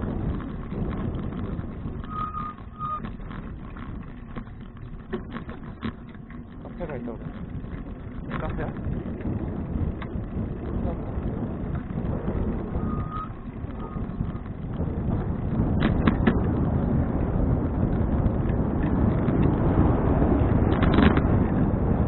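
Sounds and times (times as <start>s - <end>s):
bicycle road noise: 0.0s - 22.0s
wind on microphone: 0.0s - 22.0s
rattling clicks: 0.3s - 8.9s.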